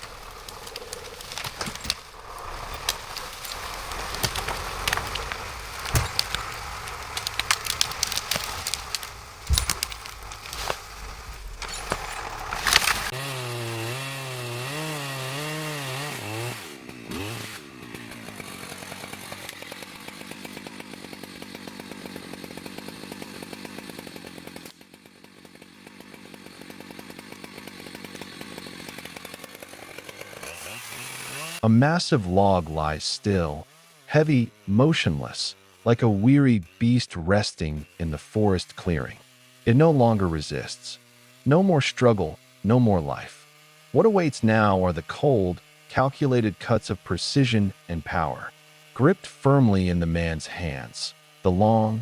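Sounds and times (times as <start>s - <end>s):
wood cracking and snapping: 0.0s - 24.8s
chainsaw cutting wood: 0.0s - 52.0s.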